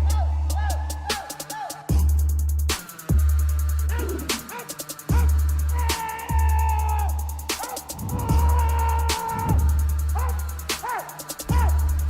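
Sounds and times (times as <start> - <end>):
fast even ticking: 1.9 - 12.0
deep bass notes: 5.1 - 10.7, 11.5 - 12.0.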